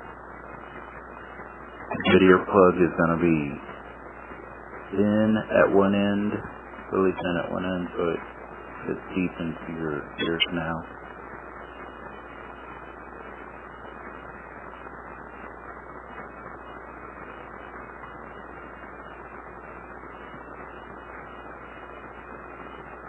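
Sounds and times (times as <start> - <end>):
low electrical hum: 0.0 - 23.0
steady hiss: 0.0 - 23.0.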